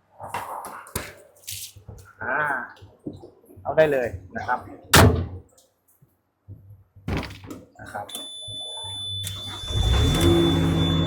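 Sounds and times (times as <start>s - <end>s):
thunk and knocks: 5.0s - 5.4s
high warning tone: 8.1s - 11.0s
diesel engine cranking and idling: 8.9s - 11.0s.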